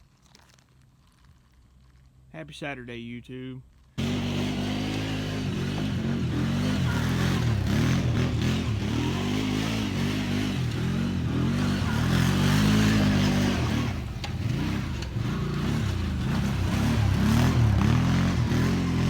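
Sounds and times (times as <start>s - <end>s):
vehicle engine revving: 4.0s - 19.0s.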